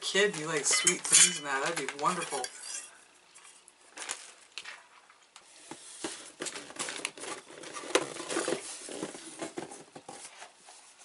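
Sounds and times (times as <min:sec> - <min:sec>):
plastic packaging crinkling: 0:00.2 - 0:02.5, 0:03.9 - 0:05.0, 0:06.3 - 0:09.5.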